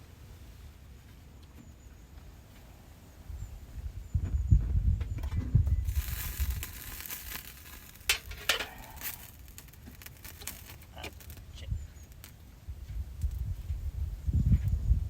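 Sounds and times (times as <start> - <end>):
food sizzling in a pan: 5.8 - 12.4.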